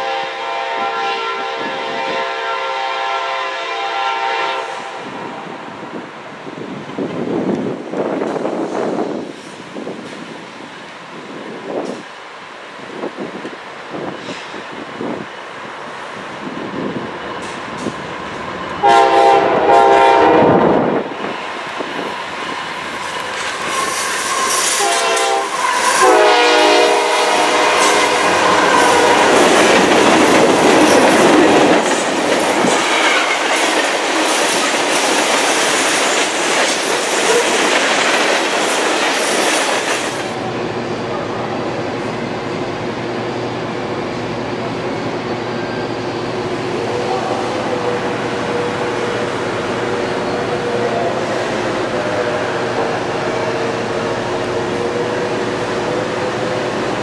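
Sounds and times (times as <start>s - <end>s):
locomotive horn blasts: 0.0s - 5.3s, 18.8s - 20.7s, 23.7s - 29.6s, 32.7s - 33.4s, 46.8s - 49.3s
train wheels clacking on rails: 15.8s - 20.2s, 20.8s - 40.4s.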